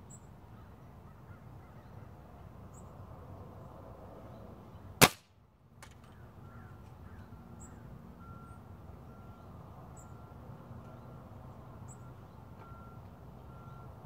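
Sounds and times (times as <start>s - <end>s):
air rifle shot: 5.0s - 5.3s.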